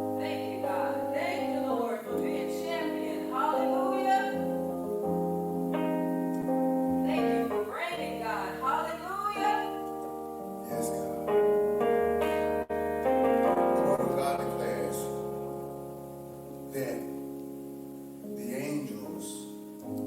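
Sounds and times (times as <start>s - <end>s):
person singing: 0.0s - 5.4s, 7.0s - 9.8s
keyboard chords: 0.0s - 20.0s.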